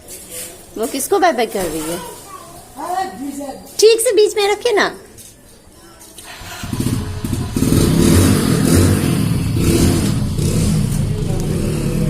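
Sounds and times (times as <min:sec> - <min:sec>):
motorcycle engine revving: 0:06.3 - 0:12.0.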